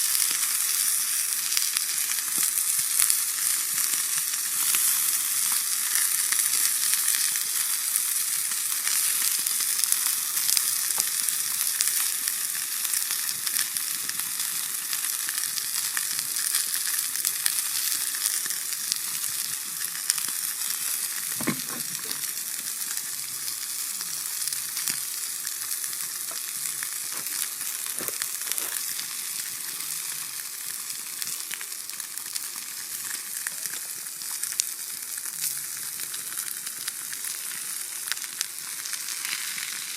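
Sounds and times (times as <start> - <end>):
steak sizzling on a griddle: 0.0 - 39.9
fat popping: 20.9 - 22.3.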